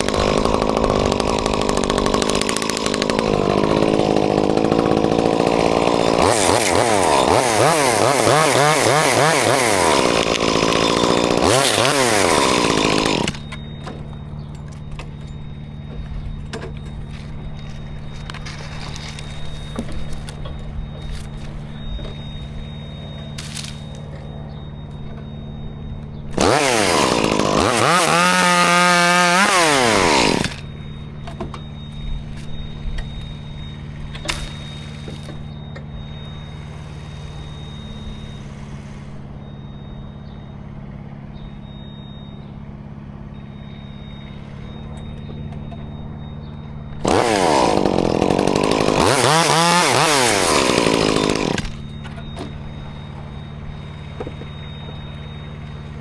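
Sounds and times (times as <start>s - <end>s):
chainsaw revving and cutting: 0.0s - 13.6s, 26.3s - 30.7s, 47.0s - 52.0s
low engine hum: 28.4s - 47.2s.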